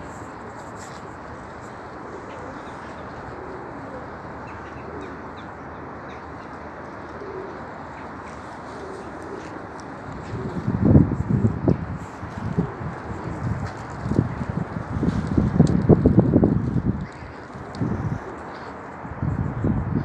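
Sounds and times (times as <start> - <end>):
pigeons cooing: 0.9 - 20.0.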